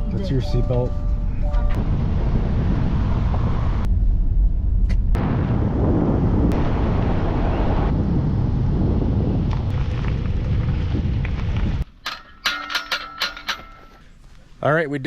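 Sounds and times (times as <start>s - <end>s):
car tyres and engine rumbling: 0.0s - 15.0s.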